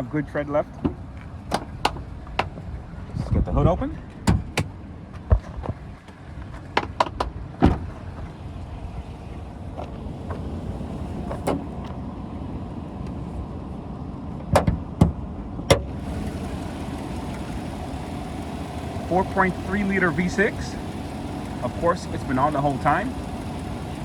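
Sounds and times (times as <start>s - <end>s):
hood latch clicks and clunks: 0.8s - 2.6s, 4.1s - 4.8s, 11.1s - 12.0s, 14.4s - 16.0s
truck engine idling: 7.9s - 13.5s, 15.8s - 24.0s.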